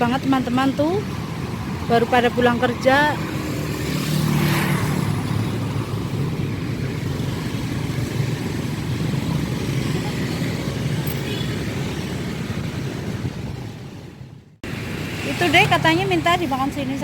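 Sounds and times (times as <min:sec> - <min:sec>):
busy road traffic rumble: 0:00.0 - 0:17.0.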